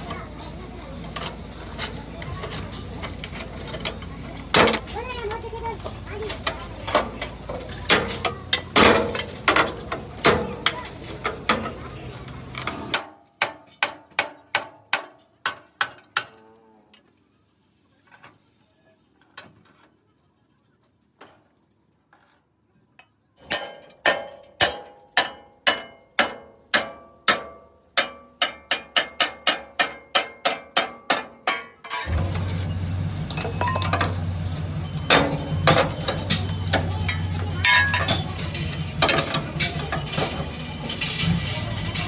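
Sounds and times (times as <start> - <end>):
hammer striking steel: 4.5 - 4.9, 23.5 - 32.2, 35.0 - 40.4.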